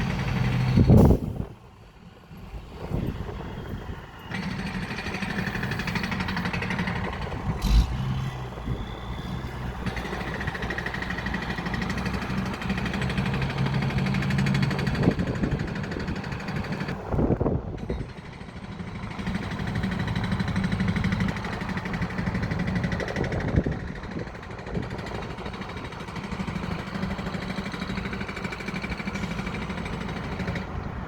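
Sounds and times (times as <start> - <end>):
vehicle engines running: 0.0 - 31.0.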